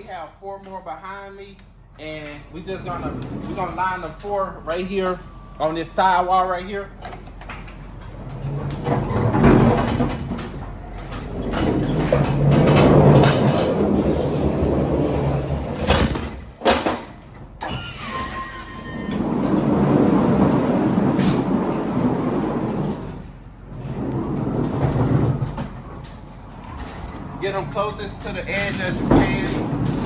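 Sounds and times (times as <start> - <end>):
pallets rolling on trailer floor: 0.0 - 30.0
falling squeal: 17.1 - 19.3.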